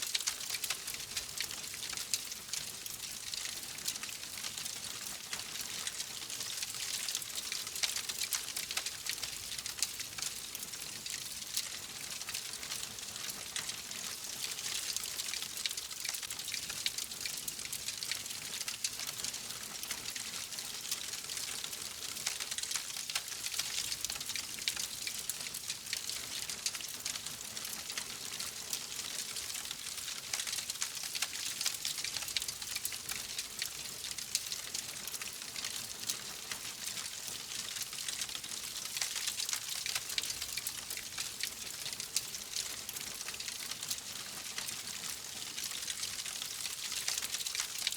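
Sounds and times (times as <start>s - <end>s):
wood fire crackling: 45.8s - 47.9s.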